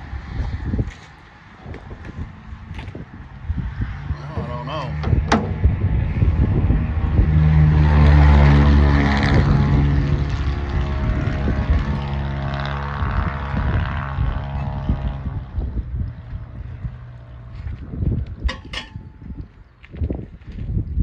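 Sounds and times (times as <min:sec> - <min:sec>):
wind rumbling on microphone: 0:00.0 - 0:21.0
engine drone: 0:02.1 - 0:19.6
sharp knock: 0:05.0 - 0:05.7.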